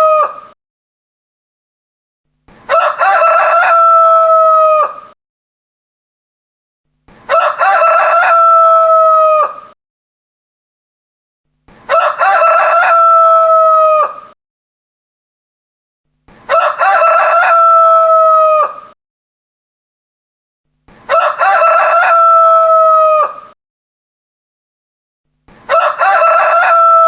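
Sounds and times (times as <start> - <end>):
rooster crowing: 0.0 - 0.5, 2.7 - 5.2, 7.3 - 9.8, 11.9 - 14.4, 16.5 - 19.0, 21.1 - 23.6, 25.7 - 27.0.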